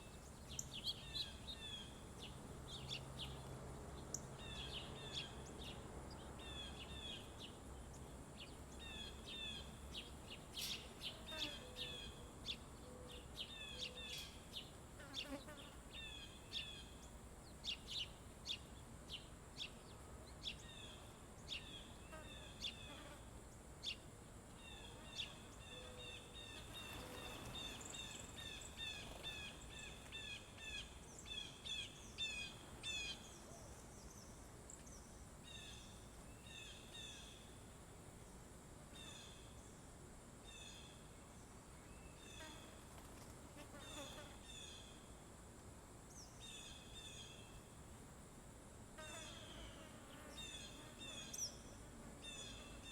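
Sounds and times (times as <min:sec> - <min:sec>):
songbirds chirping: 0:00.0 - 0:45.2, 0:49.1 - 0:52.9
high insect drone: 0:46.1 - 0:52.9.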